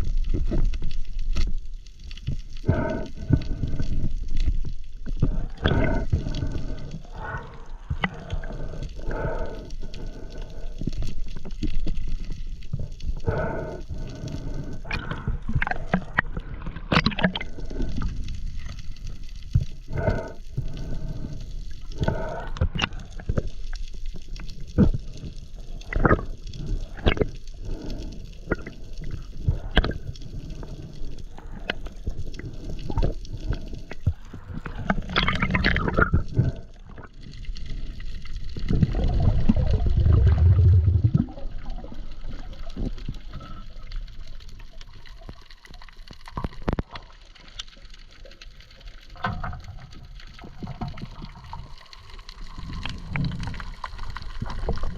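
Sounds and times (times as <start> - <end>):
bubbling gurgle: 0.0 - 1.6, 2.4 - 54.9
low gurgling rush of water: 0.0 - 54.9
sharp underwater clicks: 2.2 - 37.1.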